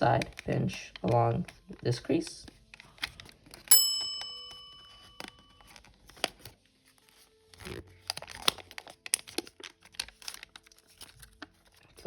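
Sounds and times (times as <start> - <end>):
paper crinkling: 0.0 - 3.7, 4.4 - 12.0
bell-like ringing tone: 3.7 - 5.6.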